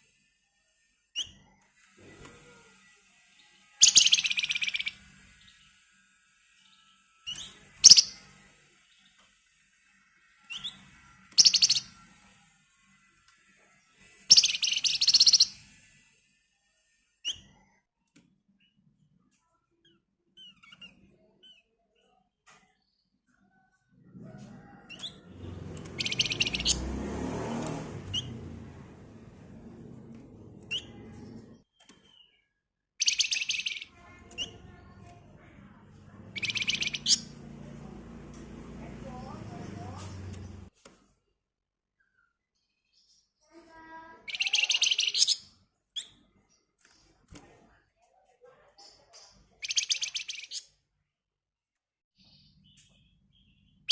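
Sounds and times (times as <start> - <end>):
songbird trilling: 3.8 - 5.0, 7.3 - 8.2, 11.4 - 11.9, 14.3 - 15.6, 25.8 - 26.8, 33.0 - 35.0, 36.3 - 37.4, 44.2 - 46.1, 49.6 - 50.7.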